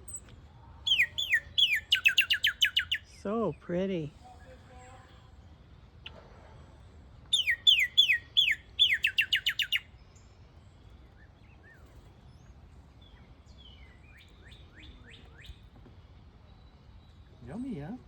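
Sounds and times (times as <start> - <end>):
faint bird chirps: 0.0 - 6.2, 7.3 - 18.0
songbird downslurred whistles: 0.9 - 3.1, 7.3 - 9.9.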